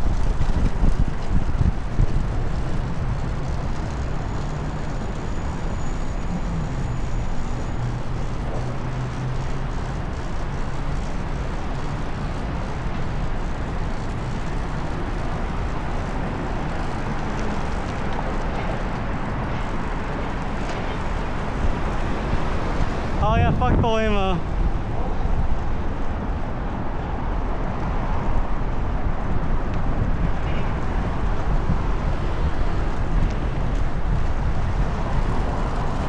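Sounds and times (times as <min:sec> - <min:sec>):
vehicle engine hum passing: 0:00.0 - 0:23.2, 0:24.4 - 0:36.0
wind and road rush: 0:00.0 - 0:36.0.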